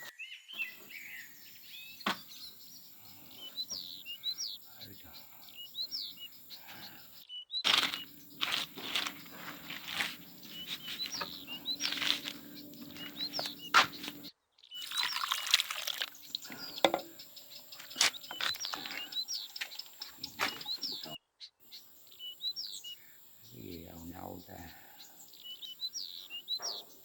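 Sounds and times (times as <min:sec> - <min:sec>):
small birds chirping: 0:00.0 - 0:27.0
steady low hum: 0:07.7 - 0:14.3.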